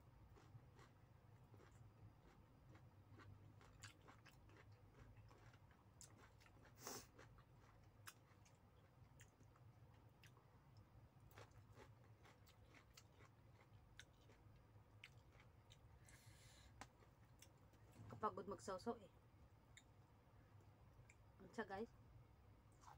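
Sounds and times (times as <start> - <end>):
low steady hum: 0.0 - 22.9
person chewing: 0.3 - 18.0.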